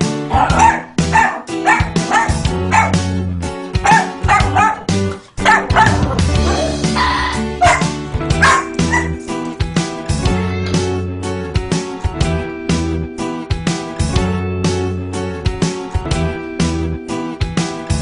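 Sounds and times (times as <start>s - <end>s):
background music: 0.0s - 18.0s
dog barking and yipping: 0.3s - 3.0s, 3.8s - 6.8s, 7.6s - 9.2s.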